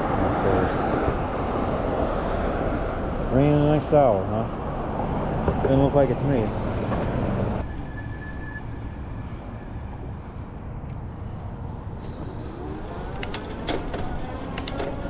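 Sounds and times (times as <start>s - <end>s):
car road and engine noise: 0.0s - 15.0s
sharp clicks: 12.2s - 15.0s.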